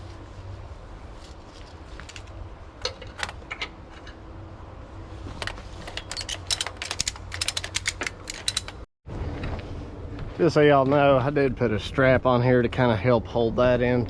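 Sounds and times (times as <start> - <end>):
metal tools clinking: 5.4 - 8.9.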